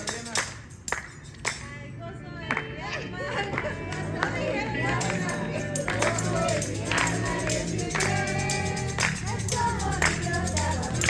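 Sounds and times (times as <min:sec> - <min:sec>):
congregation singing with band: 0:03.3 - 0:11.0
percussive beat: 0:04.9 - 0:11.0.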